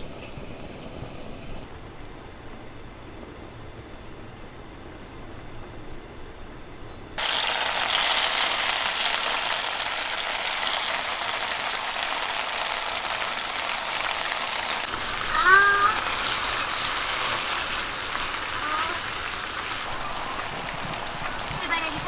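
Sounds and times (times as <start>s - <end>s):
rain falling: 7.2s - 22.0s.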